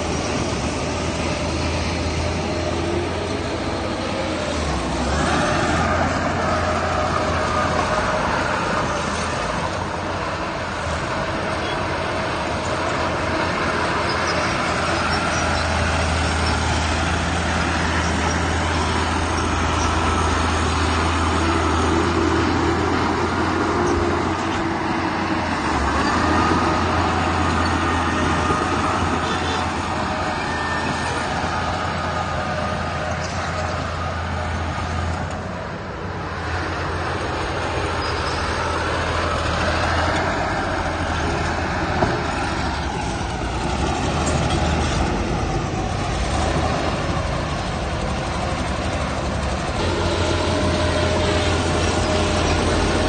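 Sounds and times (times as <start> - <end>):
heavy diesel engine drone: 0.0 - 53.0.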